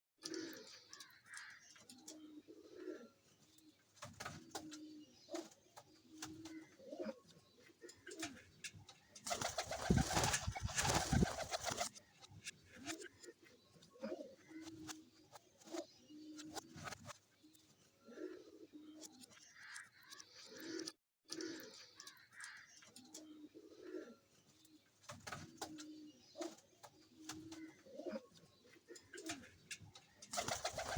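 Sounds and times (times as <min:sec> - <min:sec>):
pigeons cooing: 0:02.1 - 0:03.2, 0:06.1 - 0:08.5, 0:09.3 - 0:11.9, 0:12.8 - 0:14.9, 0:18.0 - 0:19.0, 0:23.2 - 0:24.2, 0:25.6 - 0:29.6, 0:30.3 - 0:30.9.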